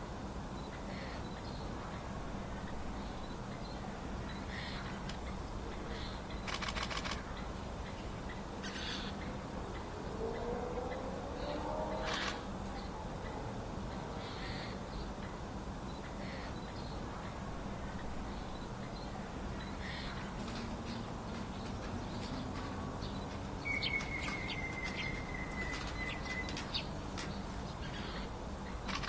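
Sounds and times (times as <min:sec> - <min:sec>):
low background hum: 0:00.0 - 0:29.0
sharp ticks: 0:06.5 - 0:07.3
thin falling bird whistle: 0:23.7 - 0:26.6.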